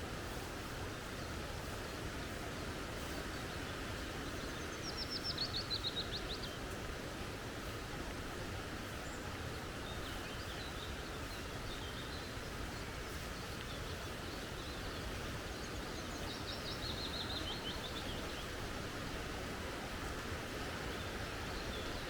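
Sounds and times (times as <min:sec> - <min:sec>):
creek water flowing: 0:00.1 - 0:22.0.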